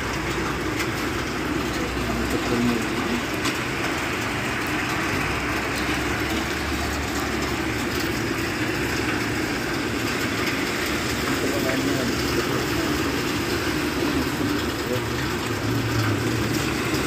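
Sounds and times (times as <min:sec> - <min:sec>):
rain on pavement: 0:00.0 - 0:17.0.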